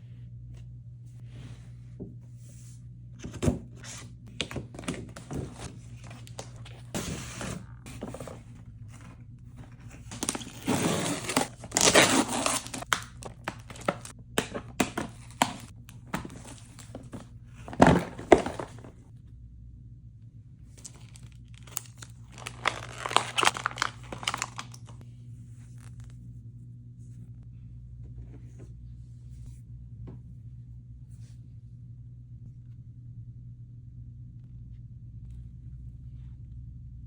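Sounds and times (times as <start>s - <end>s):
packaging knocks and scrapes: 3.2s - 19.0s, 20.8s - 25.0s
packaging tearing: 9.8s - 18.8s, 20.8s - 25.0s.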